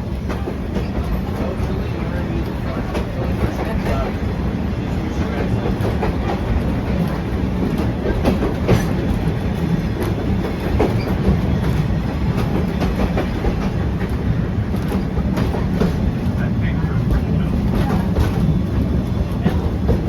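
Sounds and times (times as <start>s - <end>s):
train low rumble: 0.0s - 20.0s
wheels clacking over rail joints: 0.2s - 20.0s.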